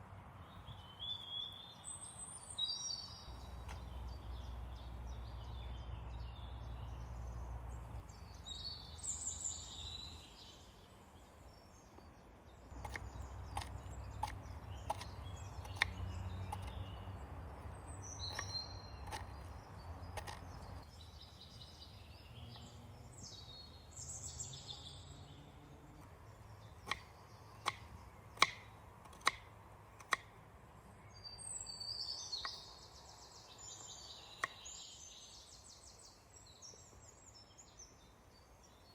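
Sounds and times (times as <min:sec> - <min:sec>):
songbirds calling: 0:00.0 - 0:38.9
low outdoor rumble: 0:03.1 - 0:31.2
sharp clicks and knocks: 0:12.8 - 0:16.9, 0:18.3 - 0:20.8.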